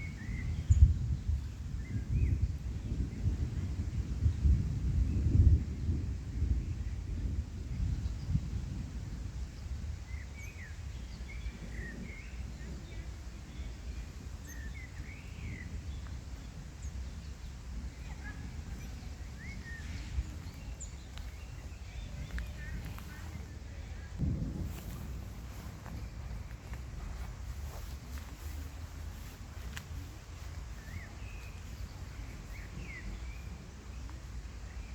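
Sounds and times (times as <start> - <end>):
low outdoor rumble: 0.0 - 34.9
faint bird chirps: 9.6 - 24.2, 24.8 - 34.9
bird chirps: 30.4 - 34.2.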